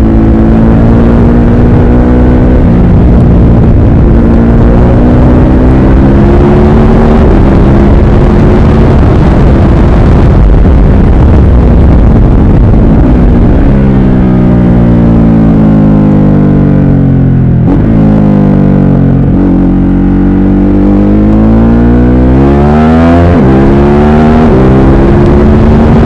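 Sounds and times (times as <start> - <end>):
wind buffeting on microphone: 2.4 - 14.9.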